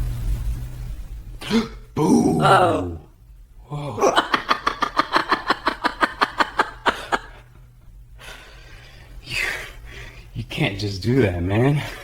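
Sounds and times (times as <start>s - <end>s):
rapid cackling laughter: 4.0s - 7.5s.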